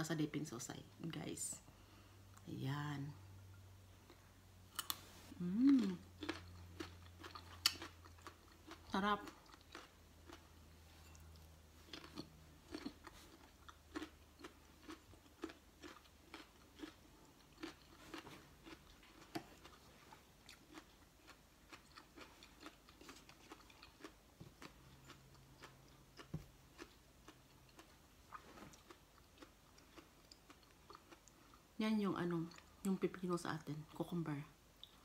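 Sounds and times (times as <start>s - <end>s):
carrot crunching while chewed: 4.8s - 31.7s.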